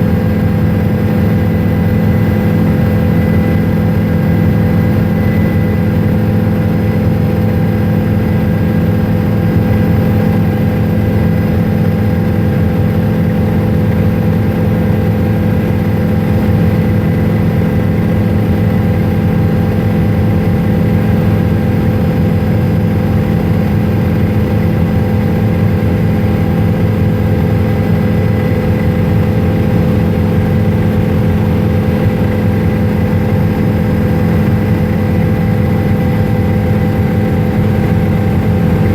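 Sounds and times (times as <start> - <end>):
helicopter engine and rotor drone: 0.0 - 38.9
steady whining tones: 25.8 - 38.9.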